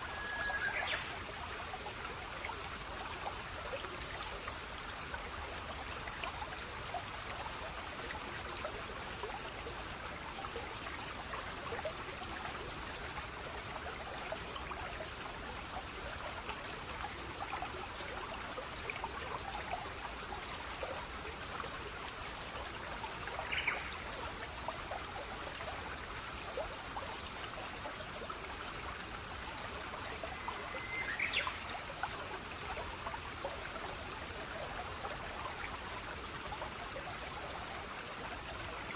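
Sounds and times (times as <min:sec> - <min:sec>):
water trickling and babbling: 0:00.0 - 0:38.9.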